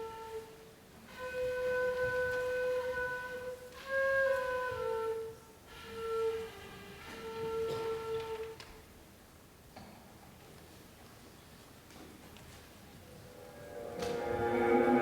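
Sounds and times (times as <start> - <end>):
slow melody with sliding notes: 13.1 - 15.0.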